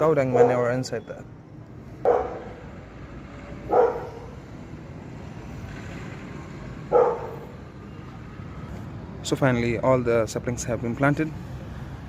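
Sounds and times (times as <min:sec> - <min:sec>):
dog barking: 0:00.2 - 0:00.8, 0:02.0 - 0:02.6, 0:03.6 - 0:04.4, 0:06.9 - 0:07.6.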